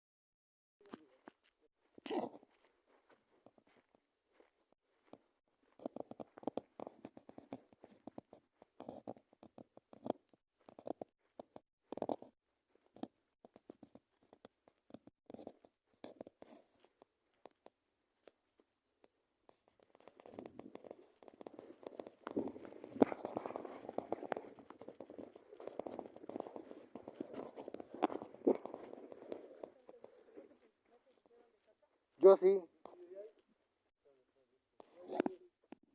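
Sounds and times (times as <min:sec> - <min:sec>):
crackling and rustling: 0:19.5 - 0:32.2.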